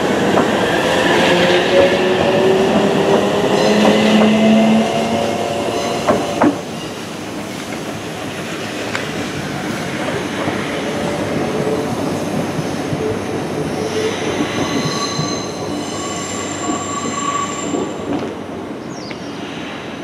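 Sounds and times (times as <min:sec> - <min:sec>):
electric train rumbling: 0:00.0 - 0:20.0
wheels squealing on rails: 0:00.1 - 0:07.5, 0:10.7 - 0:19.9.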